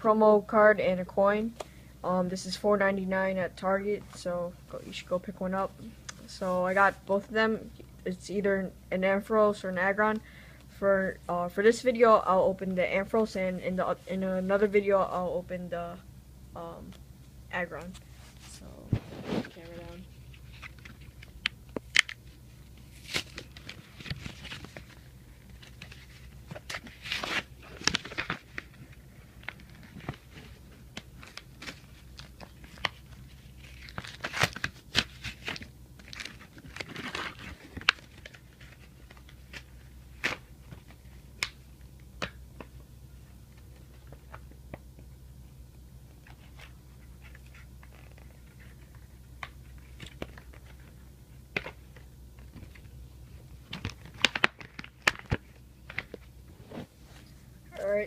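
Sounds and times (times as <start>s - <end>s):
plastic packaging being torn open: 33.6s - 38.4s.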